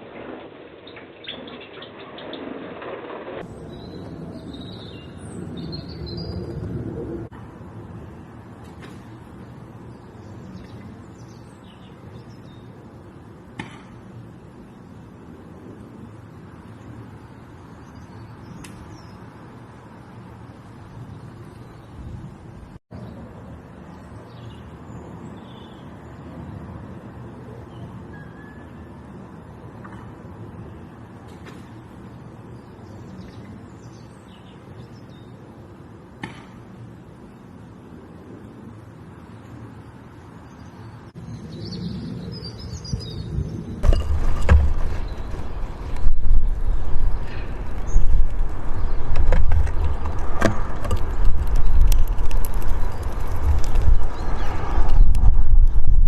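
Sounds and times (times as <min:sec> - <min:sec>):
wind rumble on microphone: 0:00.0 - 0:28.1, 0:36.7 - 0:56.0
faint high bird chirps: 0:00.8 - 0:02.4, 0:27.6 - 0:29.0
small birds chirping: 0:09.4 - 0:12.9, 0:23.9 - 0:26.2, 0:31.6 - 0:35.5, 0:39.1 - 0:43.7
low rumble: 0:43.0 - 0:56.0.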